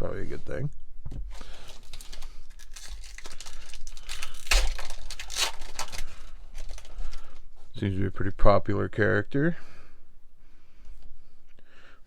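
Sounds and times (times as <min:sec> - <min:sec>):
foil wrapper ripping: 0:01.3 - 0:07.4
foil wrapper crinkling: 0:01.3 - 0:07.5.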